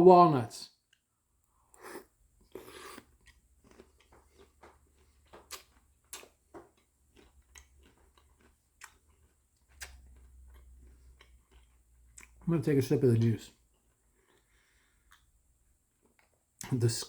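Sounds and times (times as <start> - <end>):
chewing crunches: 1.7 - 12.5.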